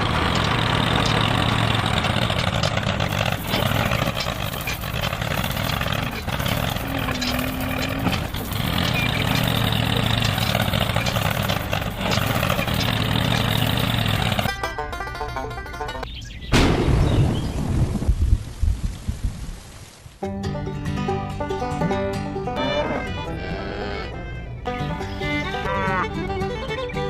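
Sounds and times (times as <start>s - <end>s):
tractor engine running: 0.0s - 16.1s.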